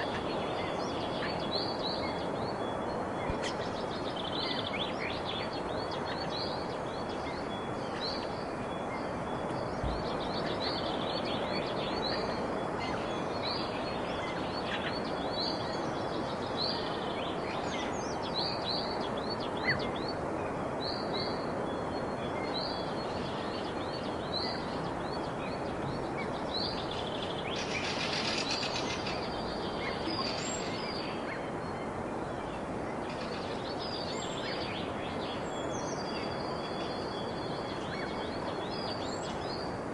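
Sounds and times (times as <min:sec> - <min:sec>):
small birds chirping: 0:00.0 - 0:39.9
steady background hiss: 0:00.0 - 0:39.9.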